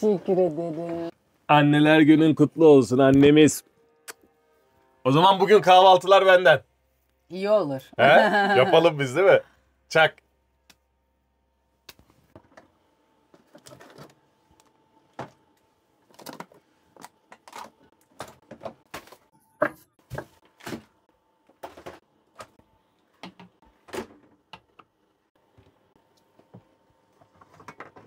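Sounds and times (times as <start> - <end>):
objects knocking and clattering: 26.4 - 28.0.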